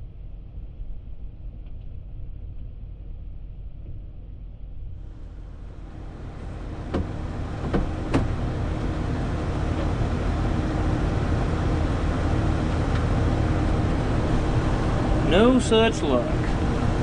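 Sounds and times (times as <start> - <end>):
rushing blower fan: 5.0 - 17.0
tractor engine idling: 5.1 - 17.0.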